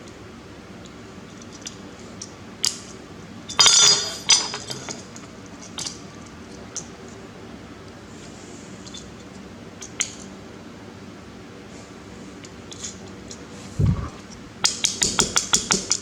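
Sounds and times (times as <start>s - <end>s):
clattering rattle: 3.5s - 5.1s.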